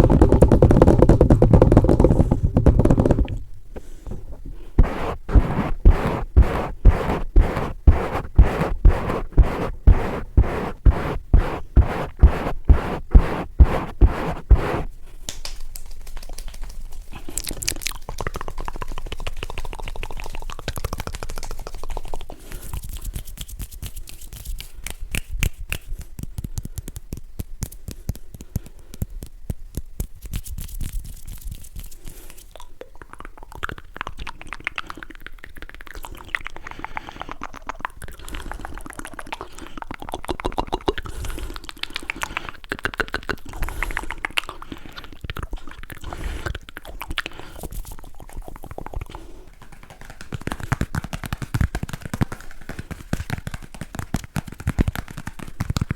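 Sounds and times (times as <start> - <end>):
rough rustling: 0.0 - 15.0
clicks and taps: 25.2 - 30.2.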